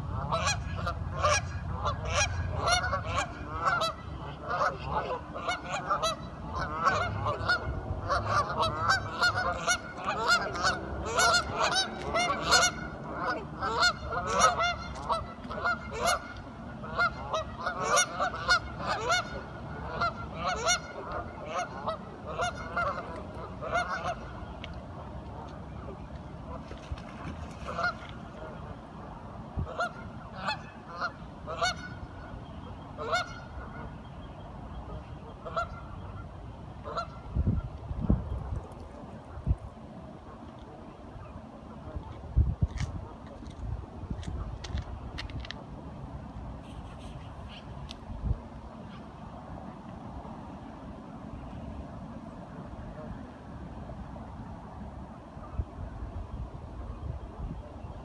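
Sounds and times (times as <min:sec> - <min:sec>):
ducks quacking: 0:00.0 - 0:24.4, 0:34.9 - 0:36.2, 0:46.6 - 0:47.7.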